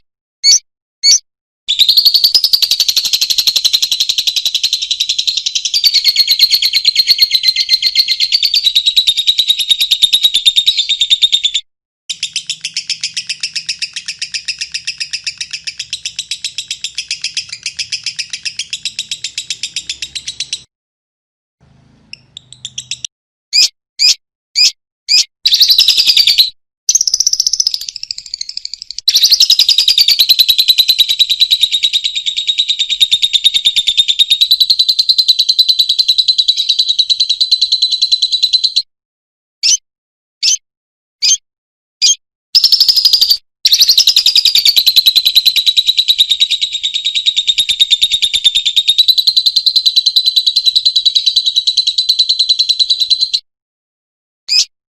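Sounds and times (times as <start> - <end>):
loud bird chirps: 0.4 - 20.7, 22.0 - 38.9, 40.4 - 40.6, 41.2 - 41.4, 42.0 - 53.4, 54.5 - 54.7
lovebird chattering trills: 1.8 - 11.5, 12.1 - 20.7, 22.1 - 38.5, 42.0 - 53.4.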